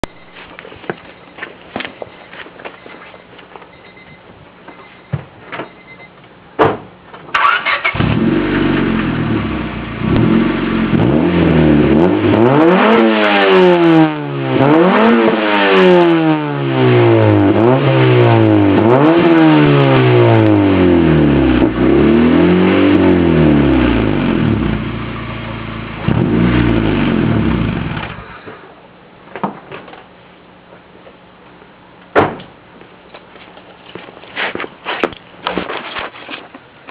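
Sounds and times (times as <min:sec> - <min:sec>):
car engine idling and revving: 0:07.8 - 0:28.5.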